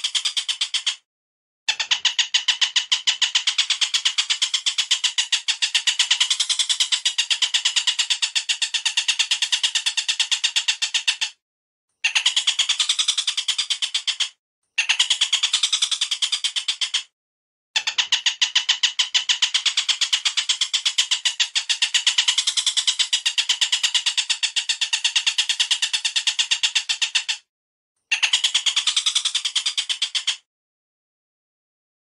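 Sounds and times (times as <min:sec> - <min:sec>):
bird chattering short notes: 0:28.1 - 0:30.4.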